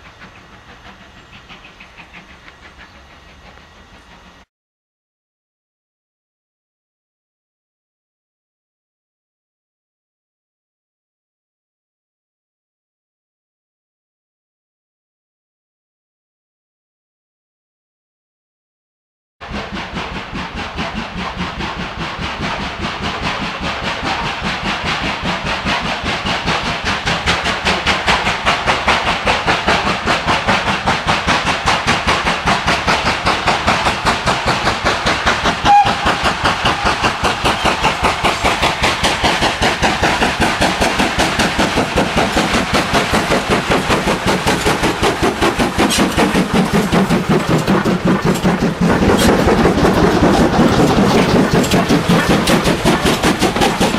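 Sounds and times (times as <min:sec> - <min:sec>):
steam locomotive exhaust beats: 0:00.0 - 0:04.5, 0:19.4 - 0:53.9.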